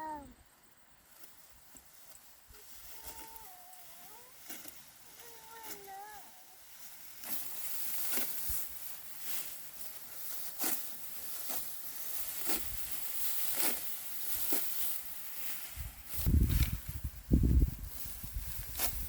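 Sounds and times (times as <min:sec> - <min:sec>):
rice stalks rustling: 0:01.0 - 0:19.0
crisp crunch: 0:06.7 - 0:16.8.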